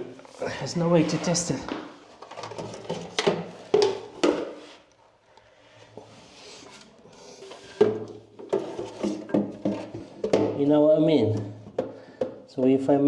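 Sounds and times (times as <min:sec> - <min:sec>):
rustling and scraping: 0:00.0 - 0:05.0, 0:05.7 - 0:10.7
hard objects knocking and clattering: 0:00.9 - 0:04.9, 0:07.5 - 0:12.9.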